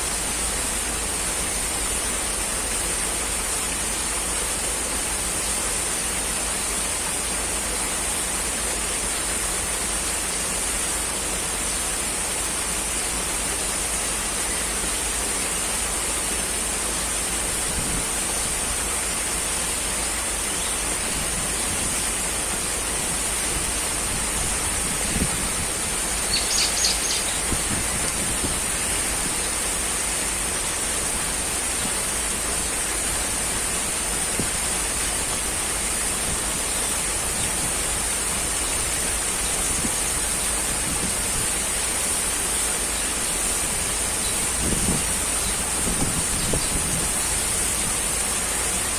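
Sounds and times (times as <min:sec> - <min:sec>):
constant high hiss: 0:00.0 - 0:48.9
steady rushing noise: 0:08.3 - 0:48.9
high chirps: 0:26.1 - 0:27.6.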